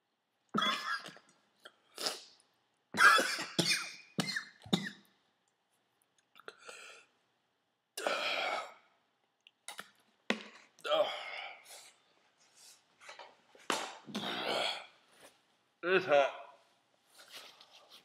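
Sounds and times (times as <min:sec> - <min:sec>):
man coughing and clearing throat: 0:00.6 - 0:01.3, 0:03.0 - 0:05.0.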